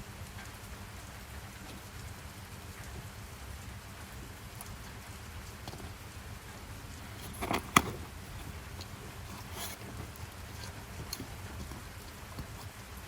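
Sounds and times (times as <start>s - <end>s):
steady rain: 0.0s - 6.6s.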